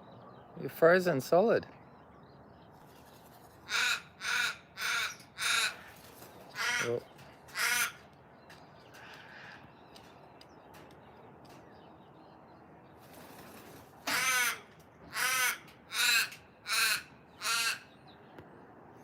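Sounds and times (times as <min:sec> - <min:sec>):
raven cawing: 0:03.6 - 0:08.2, 0:08.8 - 0:09.9, 0:14.0 - 0:18.0.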